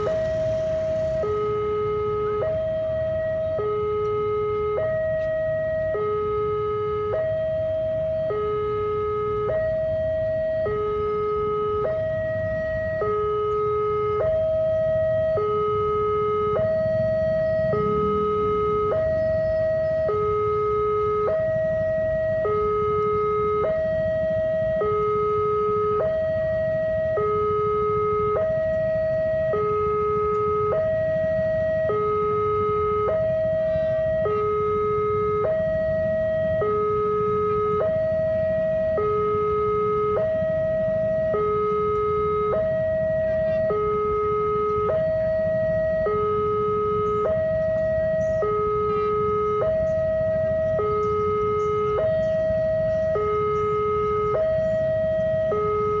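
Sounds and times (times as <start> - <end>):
level crossing two-tone alarm: 0.0 - 56.0
low rumble of traffic: 0.0 - 56.0.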